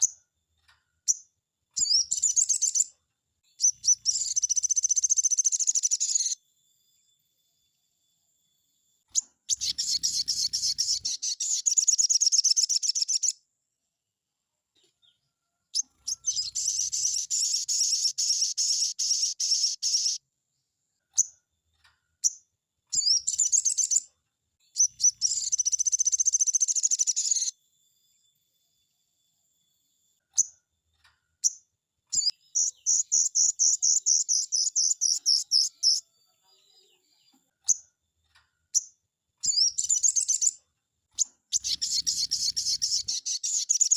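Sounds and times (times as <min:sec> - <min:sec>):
bird singing rattling trills: 0:01.0 - 0:02.9, 0:03.5 - 0:06.4, 0:09.1 - 0:13.4, 0:15.8 - 0:20.2, 0:22.2 - 0:24.1, 0:24.7 - 0:27.5, 0:31.4 - 0:36.1, 0:38.7 - 0:40.6, 0:41.2 - 0:43.9
bird single calls: 0:09.5 - 0:13.2, 0:41.2 - 0:43.9.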